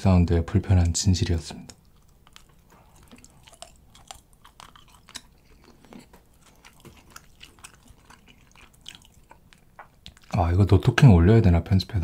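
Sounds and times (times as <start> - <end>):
chewing cheese: 1.6 - 10.5.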